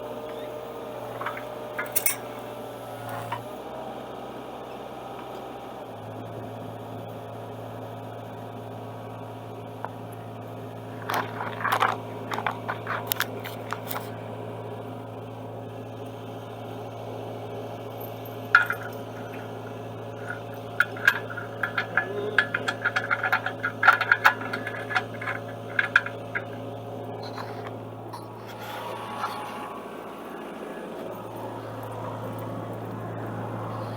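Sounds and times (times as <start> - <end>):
excavator diesel engine idling: 0.0 - 33.9
metal clinks and clanks: 1.0 - 2.5, 11.0 - 14.1, 18.0 - 29.8.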